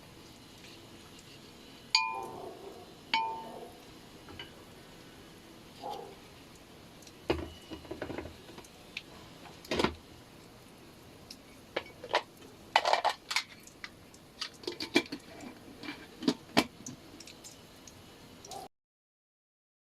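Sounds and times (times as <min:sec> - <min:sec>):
utensils and dishes clinking: 0:03.1 - 0:03.6.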